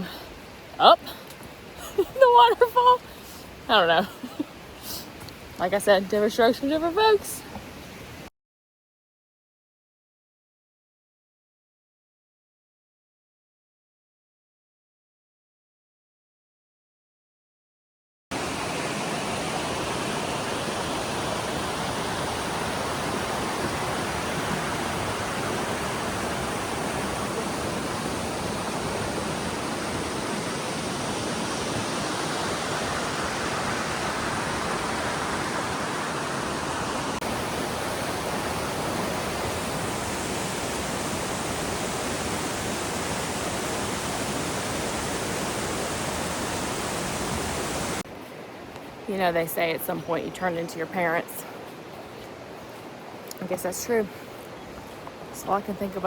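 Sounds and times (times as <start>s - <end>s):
waterfall rushing: 18.4s - 48.0s.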